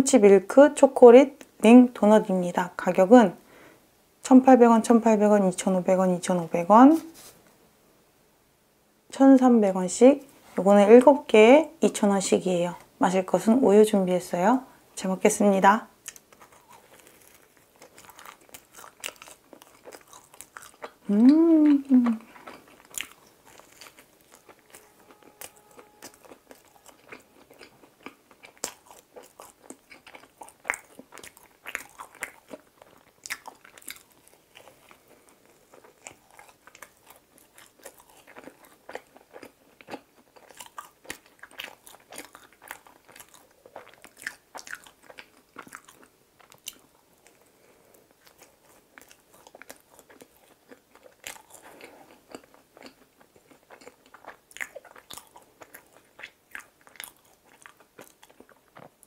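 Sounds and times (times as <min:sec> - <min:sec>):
person chewing: 0:16.0 - 0:59.0.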